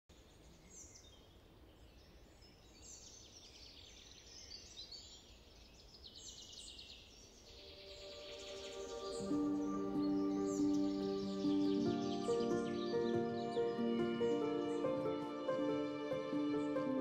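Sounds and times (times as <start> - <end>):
bird chirps and trills: 0.2 - 17.0
soft music: 7.6 - 17.0.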